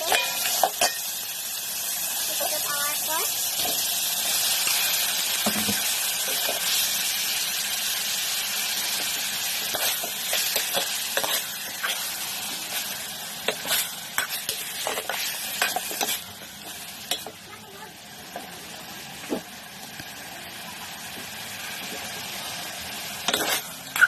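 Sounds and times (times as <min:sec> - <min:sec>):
meat sizzling in a pot: 0:00.0 - 0:24.0
utensil clinking and scraping pot: 0:09.6 - 0:12.1, 0:23.2 - 0:24.0.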